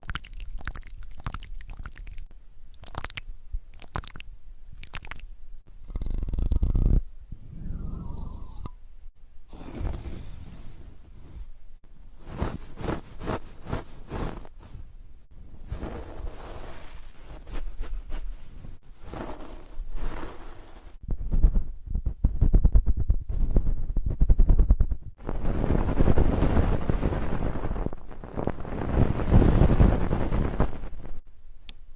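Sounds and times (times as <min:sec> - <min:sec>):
crackling and rubbing: 0:12.2 - 0:14.9, 0:15.6 - 0:31.2
scratchy rustling: 0:12.2 - 0:14.9, 0:15.6 - 0:21.8, 0:22.4 - 0:31.2.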